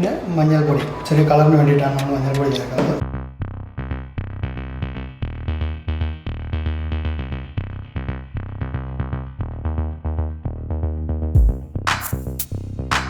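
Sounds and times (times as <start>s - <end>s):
drum machine beat: 11.4s - 13.0s.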